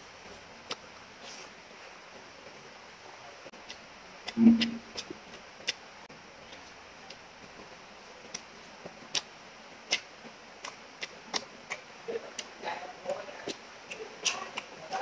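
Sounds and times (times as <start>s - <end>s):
lip smacks: 9.9s - 14.7s
wet mouth clicks of chewing: 9.9s - 14.7s.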